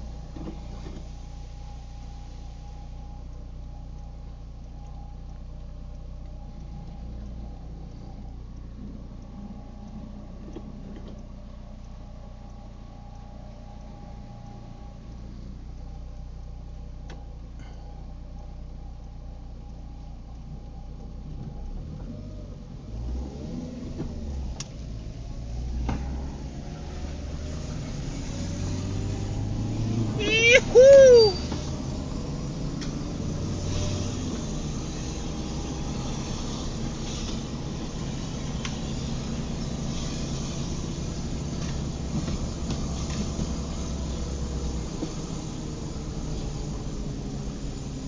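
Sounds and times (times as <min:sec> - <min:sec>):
car engine and road rumble: 0:00.0 - 0:48.0
tyres and rain hissing: 0:24.1 - 0:48.0.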